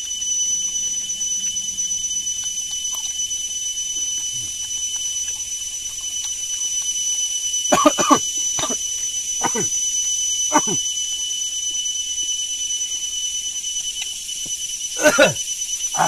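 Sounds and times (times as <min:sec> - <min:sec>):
high-pitched whine and hiss: 0:00.0 - 0:16.0
chewing: 0:00.1 - 0:10.0.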